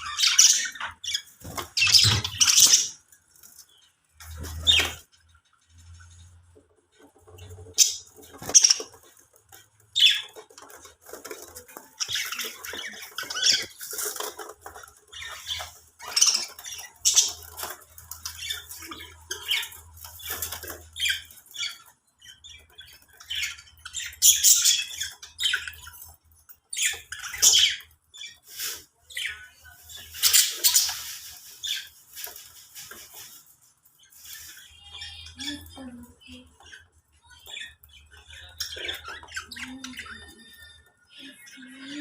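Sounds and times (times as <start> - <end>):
budgerigars chirping and squawking: 0.0 - 42.0.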